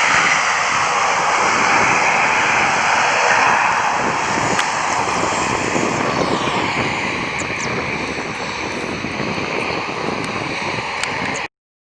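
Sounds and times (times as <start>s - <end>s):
airplane engines with whine: 0.0s - 11.5s.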